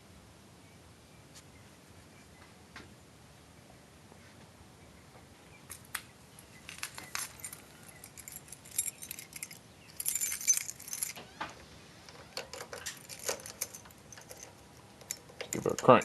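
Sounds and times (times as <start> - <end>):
keys jangling: 7.0 - 11.2, 12.1 - 16.0.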